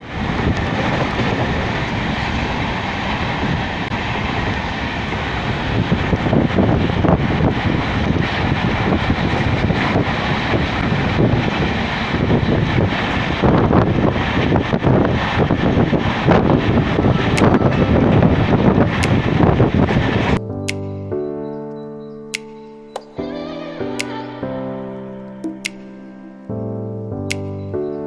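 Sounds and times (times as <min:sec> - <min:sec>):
train clatter: 0:00.0 - 0:20.4
train wheels rumbling and rattling: 0:00.0 - 0:20.4.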